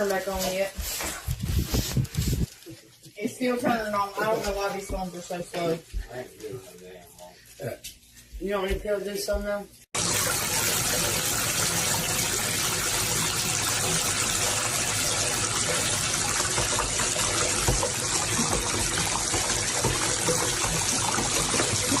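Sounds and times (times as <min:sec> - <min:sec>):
water rushing: 0:10.0 - 0:22.0.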